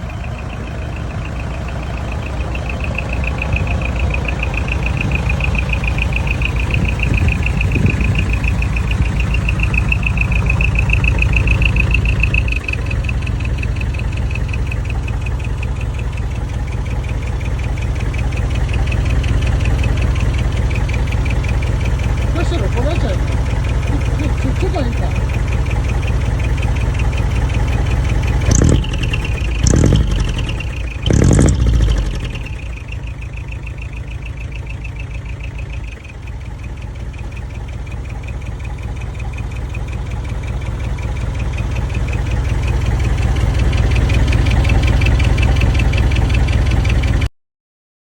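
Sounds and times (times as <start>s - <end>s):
diesel truck engine revving and idling: 0.0s - 47.3s.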